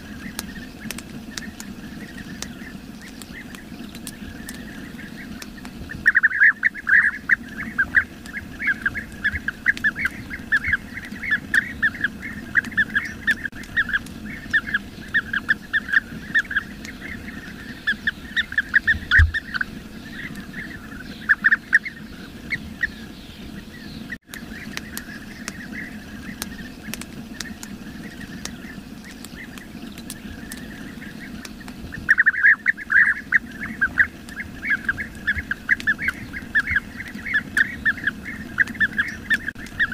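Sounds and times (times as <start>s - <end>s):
bee-eaters calling: 0.0s - 39.9s.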